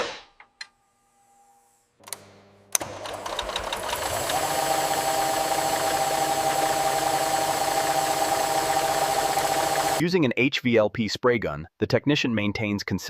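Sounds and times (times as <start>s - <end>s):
motor hum: 0.8s - 10.0s
spray gun hissing and whining: 4.1s - 10.0s.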